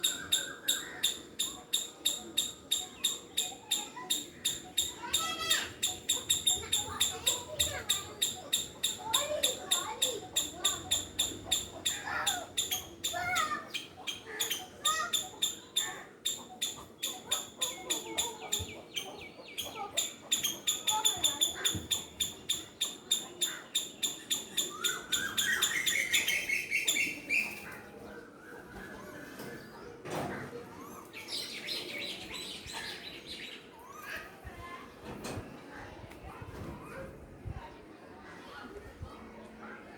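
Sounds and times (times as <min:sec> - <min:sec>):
squirrel alarm call chirps: 0:00.0 - 0:27.6.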